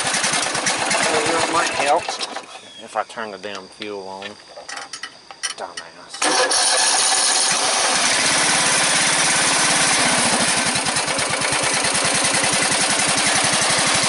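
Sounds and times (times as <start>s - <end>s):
small gasoline engine running: 0.0s - 2.5s, 6.2s - 14.0s.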